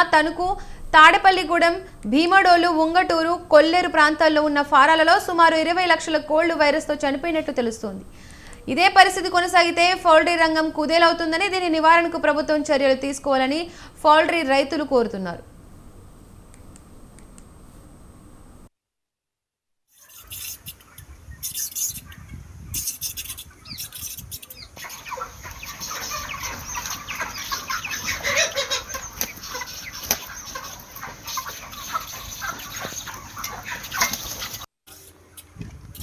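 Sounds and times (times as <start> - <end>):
chickens calling: 20.0 - 34.6.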